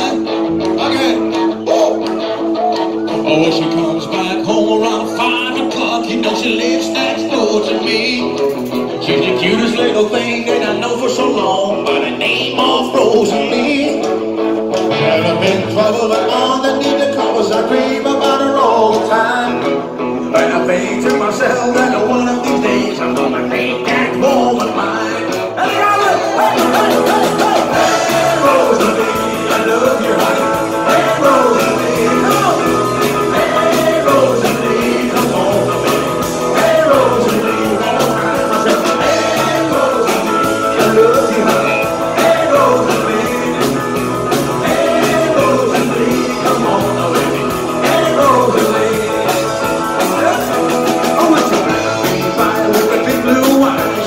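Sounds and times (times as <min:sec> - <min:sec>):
rock band playing live: 0:00.0 - 0:54.0
melodic lead line: 0:08.8 - 0:54.0
steady drum beat: 0:25.6 - 0:54.0.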